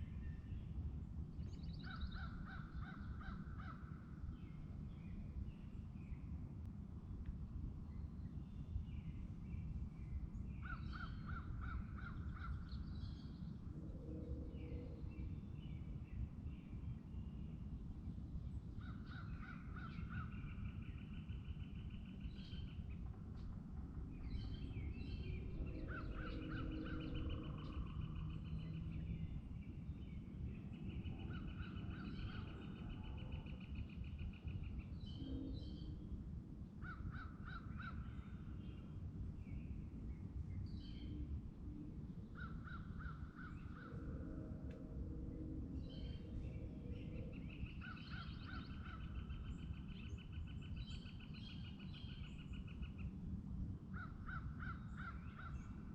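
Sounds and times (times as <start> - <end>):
songbird singing with trill: 0.0 - 3.4, 18.8 - 41.4, 42.2 - 53.1
low rumble of wind: 0.0 - 55.9
faint lower bird calls: 18.6 - 53.2, 53.9 - 55.9.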